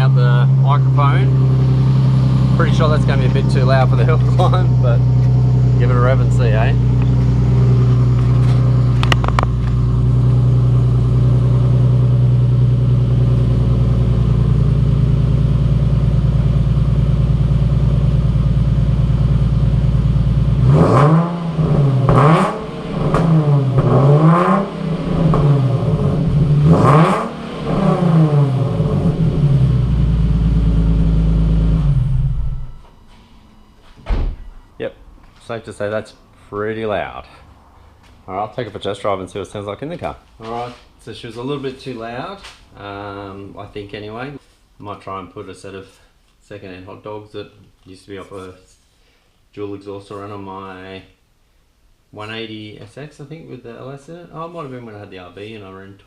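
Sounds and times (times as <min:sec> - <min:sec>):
loud raspy car exhaust revving: 0:00.0 - 0:32.7.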